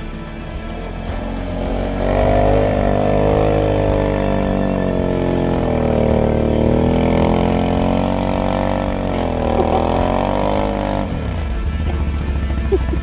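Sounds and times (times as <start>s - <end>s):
atv engine running hard: 0.0s - 13.0s
steady low drone: 0.0s - 13.0s.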